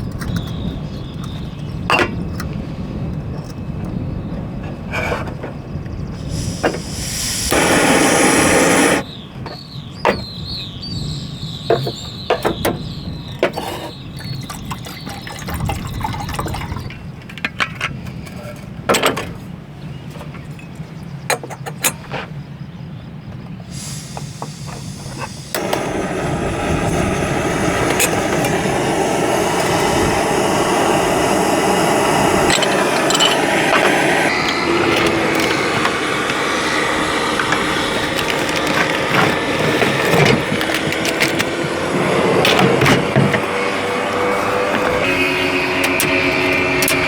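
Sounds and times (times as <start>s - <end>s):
liquid pouring: 14.2s - 16.9s.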